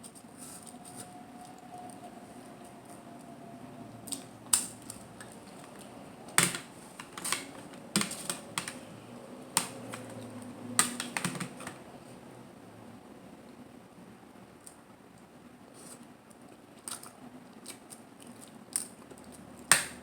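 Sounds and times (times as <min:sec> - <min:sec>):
eating shellfish clicks and taps: 0:04.1 - 0:08.9, 0:09.5 - 0:11.8.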